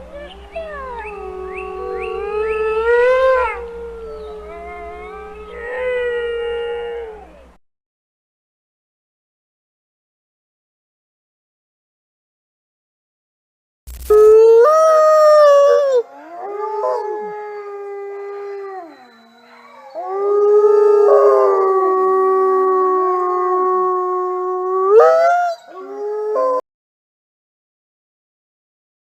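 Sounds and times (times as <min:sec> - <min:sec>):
wolves howling: 0:00.0 - 0:07.6, 0:14.1 - 0:26.6.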